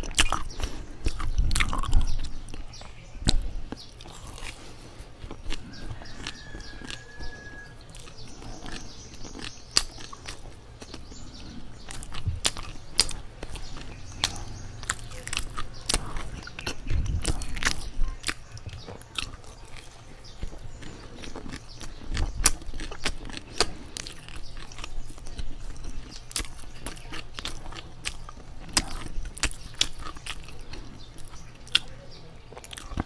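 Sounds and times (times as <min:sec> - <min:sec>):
chewing soft bread: 0:00.0 - 0:33.0.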